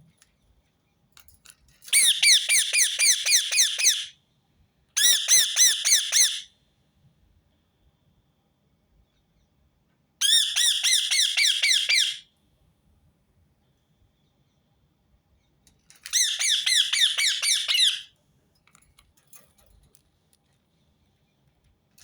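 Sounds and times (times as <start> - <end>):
parakeet calling: 2.0 - 4.1, 5.0 - 6.5, 10.2 - 12.2, 16.1 - 18.1.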